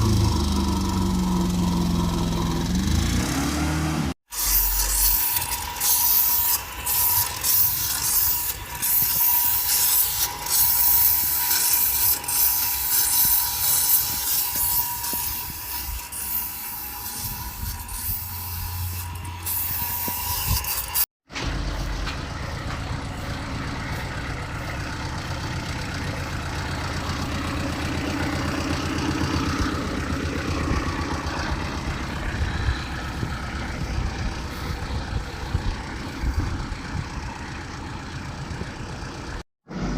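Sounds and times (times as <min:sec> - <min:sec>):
car engine running: 0:00.0 - 0:04.2, 0:21.3 - 0:39.9
power tool grinding: 0:00.0 - 0:36.5.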